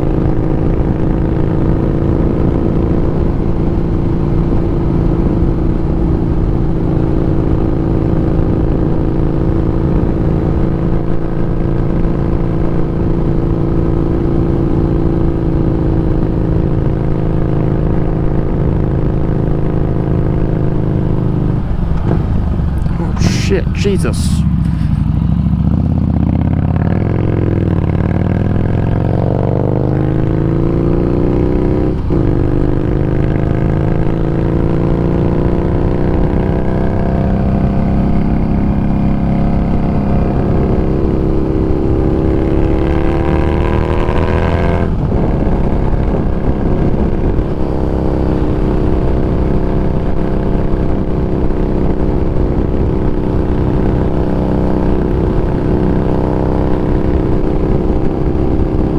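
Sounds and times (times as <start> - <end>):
motorcycle engine running: 0.0 - 58.9
wind rumble on microphone: 24.6 - 58.9.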